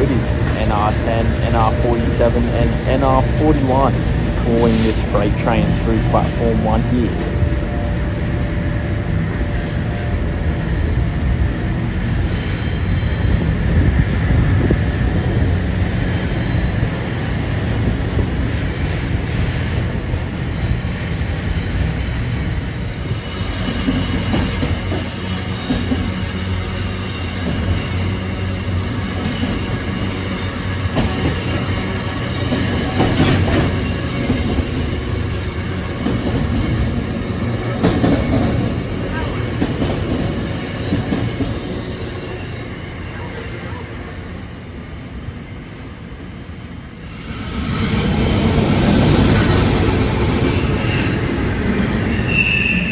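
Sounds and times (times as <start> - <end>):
train wagons rumbling over rails: 0.0 - 45.6
high wheel squeal: 47.0 - 52.9.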